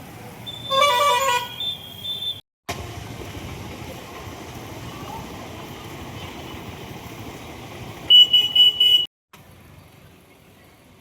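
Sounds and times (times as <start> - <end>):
vehicle horn honking: 0.5 - 1.8, 8.1 - 9.1.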